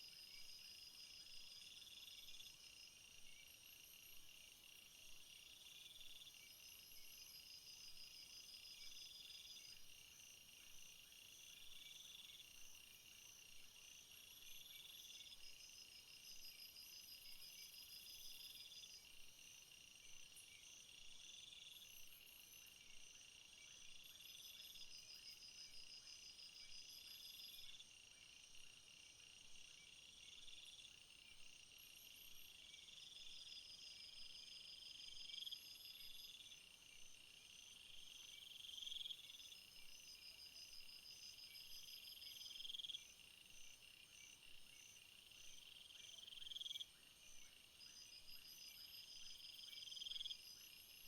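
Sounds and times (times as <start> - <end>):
crickets chirping and trilling: 0.0 - 51.0.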